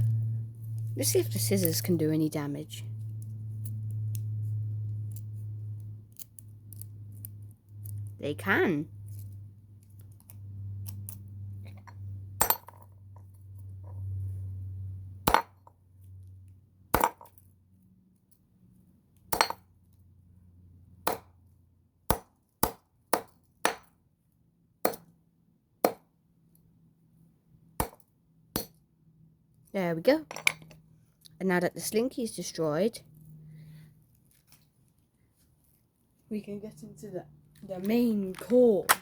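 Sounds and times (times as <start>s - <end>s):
low hum: 0.0s - 16.6s
scissors snipping metal coils: 5.0s - 8.2s, 9.1s - 11.3s.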